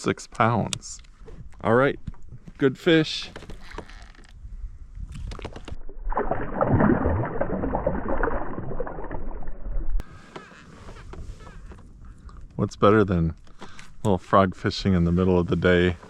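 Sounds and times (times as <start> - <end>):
water splashing against kayak: 5.1 - 10.1.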